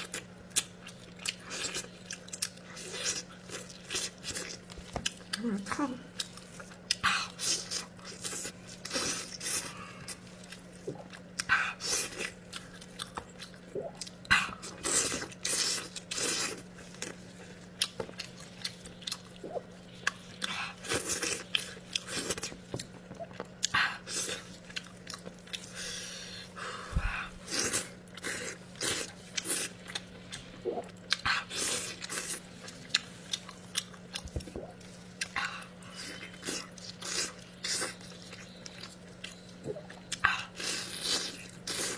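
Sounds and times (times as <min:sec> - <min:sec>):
faint low hum: 0:00.0 - 0:41.9
person chewing and biting: 0:06.2 - 0:41.9.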